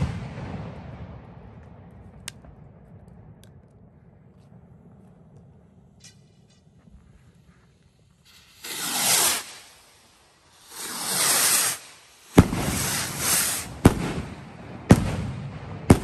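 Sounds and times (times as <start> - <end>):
firework bangs: 0.0 - 16.0
fireworks whooshing: 5.5 - 16.0.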